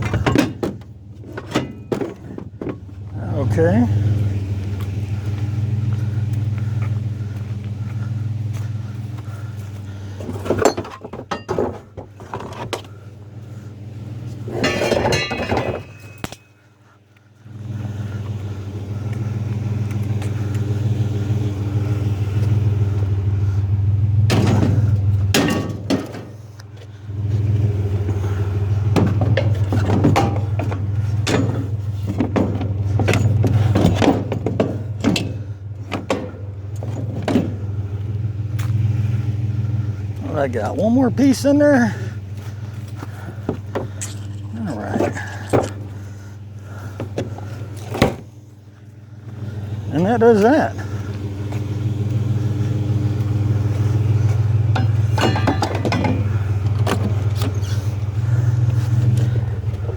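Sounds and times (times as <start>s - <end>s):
scrap metal clanking: 0.0s - 5.4s, 6.2s - 16.6s, 24.2s - 59.9s
vehicle engine idling: 0.0s - 59.9s
metal scraping on metal: 14.5s - 16.3s.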